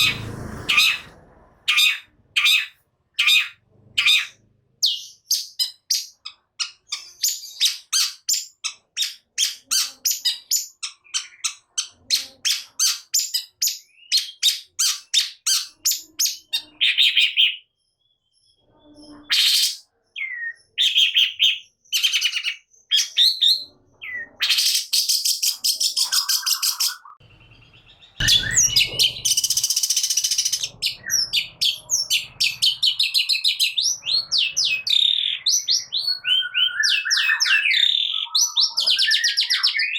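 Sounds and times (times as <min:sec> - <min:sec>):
harsh rasping bird calls: 0:00.0 - 0:17.7, 0:19.0 - 0:39.9
shrike singing: 0:26.0 - 0:39.8.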